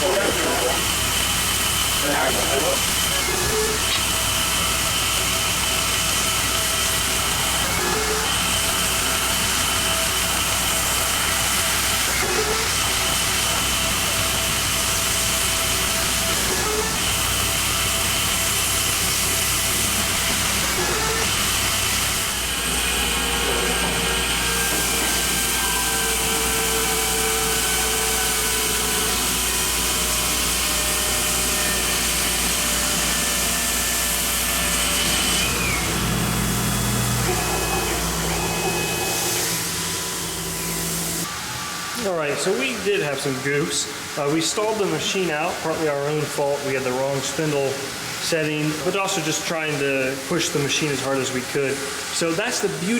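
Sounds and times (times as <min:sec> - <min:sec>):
hiss of metal cutting: 0:00.0 - 0:52.9
lathe spindle whine: 0:00.0 - 0:52.9.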